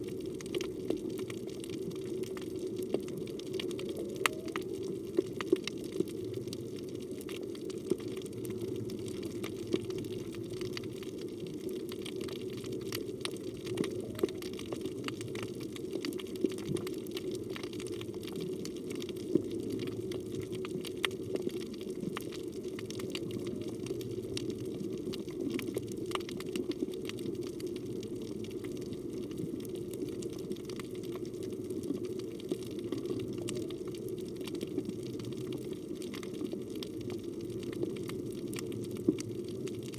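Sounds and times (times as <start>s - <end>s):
low rush of water underwater: 0.0s - 39.9s.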